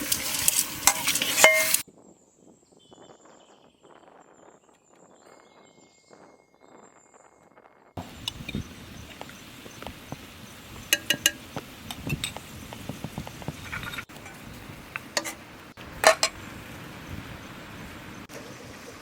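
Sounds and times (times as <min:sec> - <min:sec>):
utensils clinking against dishes: 0:00.0 - 0:01.8, 0:10.9 - 0:12.4, 0:13.6 - 0:14.4, 0:16.0 - 0:16.4
steady background hiss: 0:08.0 - 0:19.0.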